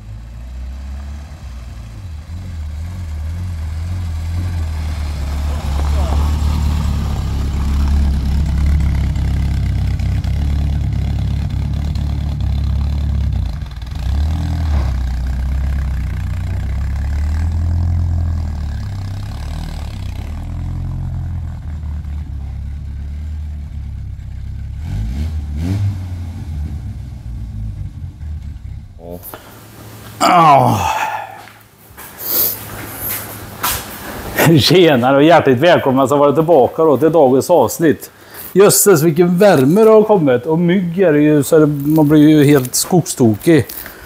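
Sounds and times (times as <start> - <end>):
engine revving: 0.0 - 30.2.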